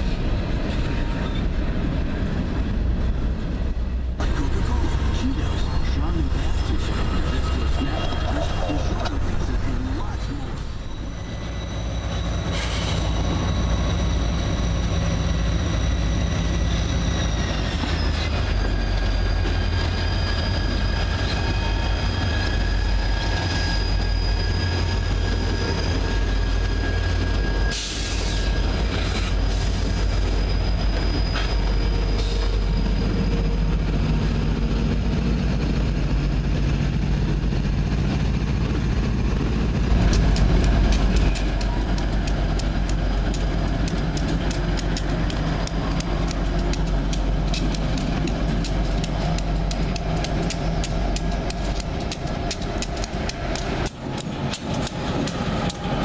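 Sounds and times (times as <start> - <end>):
diesel locomotive engines rumbling: 0.0 - 56.0
train clanks: 0.0 - 56.0
high-pitched wheel squeal: 10.2 - 33.6.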